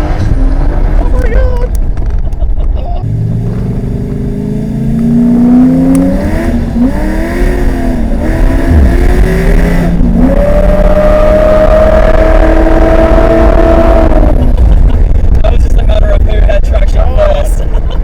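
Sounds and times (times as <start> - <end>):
turbocharged engine revving: 3.0 - 15.4.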